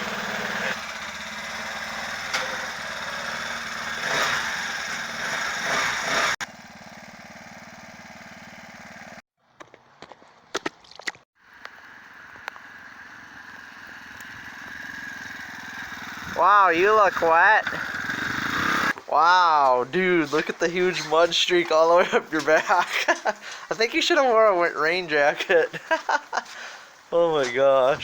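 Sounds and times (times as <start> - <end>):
motorized bicycle engine running: 0.0 - 9.2, 11.5 - 19.0.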